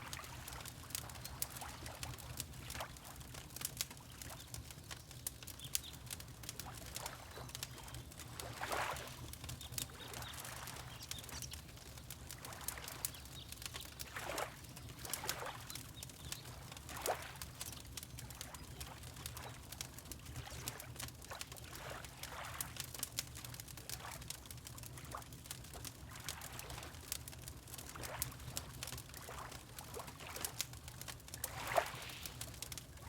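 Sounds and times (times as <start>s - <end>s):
fireplace crackling and popping: 0.0s - 33.0s
water lapping: 6.6s - 9.2s, 12.3s - 15.8s, 27.8s - 30.6s, 31.4s - 32.8s.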